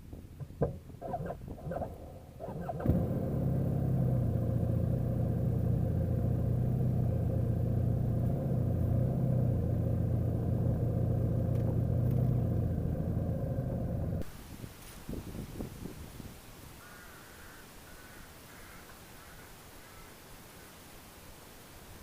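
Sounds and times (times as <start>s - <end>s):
motorcycle engine starting and idling: 0.4s - 14.3s.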